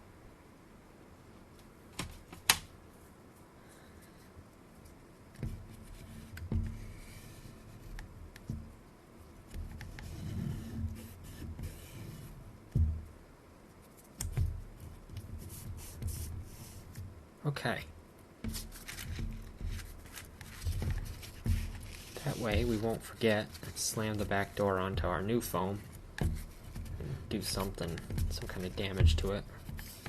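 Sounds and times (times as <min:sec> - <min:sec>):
bumps knocks and rubbing: 0:05.3 - 0:08.8, 0:09.4 - 0:13.2, 0:13.9 - 0:17.2, 0:18.4 - 0:30.0.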